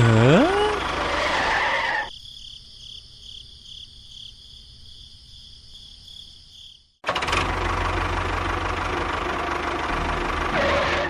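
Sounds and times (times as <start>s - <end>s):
insect chirping trill: 1.9s - 7.0s.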